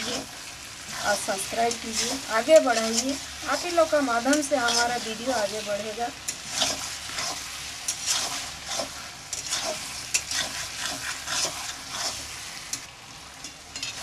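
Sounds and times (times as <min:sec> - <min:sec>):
meat sizzling in a pan: 0:00.0 - 0:14.0
spatula scraping metal pan: 0:01.7 - 0:05.2, 0:06.3 - 0:12.3.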